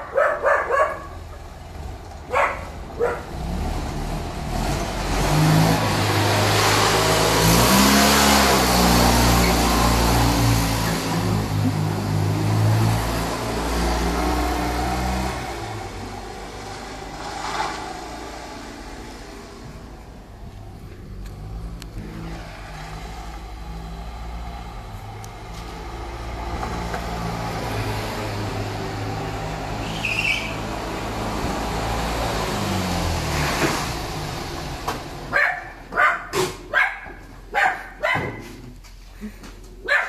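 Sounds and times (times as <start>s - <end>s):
dog barking: 0.0s - 1.3s, 2.3s - 3.3s, 35.3s - 38.5s.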